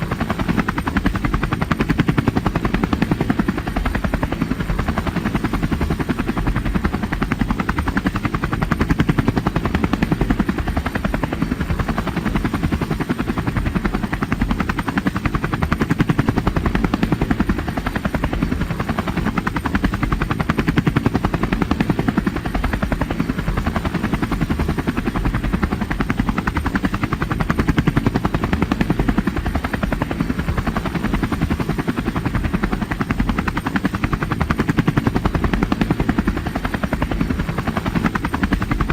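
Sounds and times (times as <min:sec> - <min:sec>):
helicopter rotor chopping: 0:00.0 - 0:38.9.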